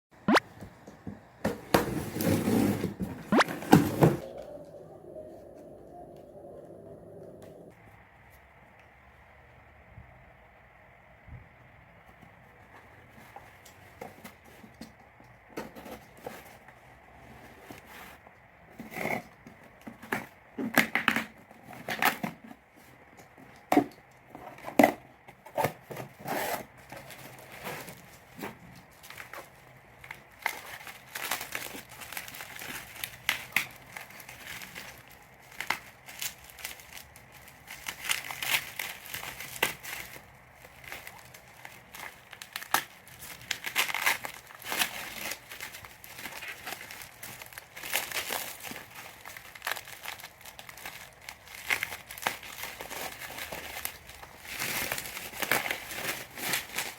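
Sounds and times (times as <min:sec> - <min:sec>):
packaging crinkling and tearing: 0:25.5 - 0:56.9.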